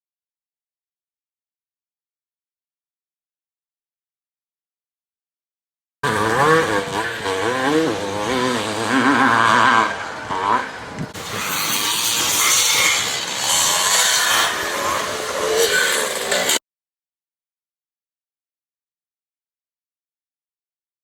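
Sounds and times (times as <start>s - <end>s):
motocross bike engines revving: 6.0s - 16.6s.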